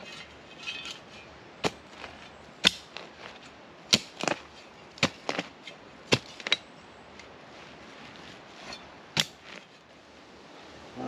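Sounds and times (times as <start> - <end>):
digging tool chopping into ground: 1.6 - 6.6, 9.2 - 9.6.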